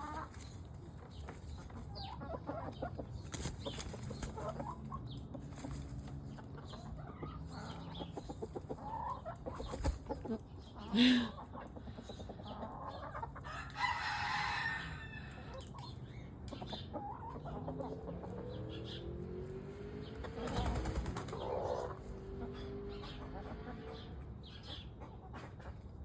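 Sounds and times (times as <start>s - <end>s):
chicken clucking: 0.0s - 26.0s.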